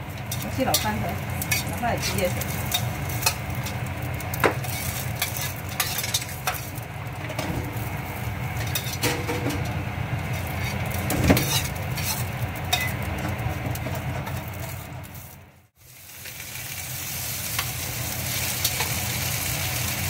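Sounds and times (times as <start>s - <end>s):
shrimp sizzling in a pan: 0.0s - 7.0s, 10.2s - 13.6s, 14.4s - 20.0s
steady low hum: 0.0s - 15.7s.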